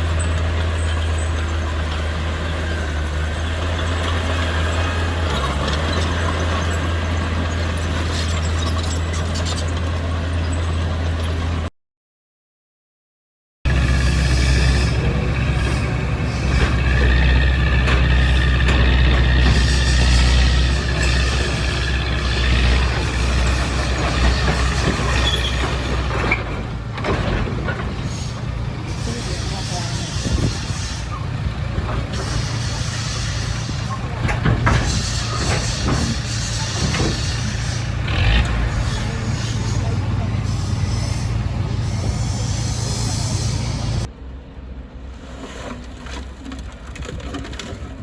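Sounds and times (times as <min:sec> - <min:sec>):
diesel engine running: 0:00.0 - 0:11.7, 0:13.7 - 0:45.0.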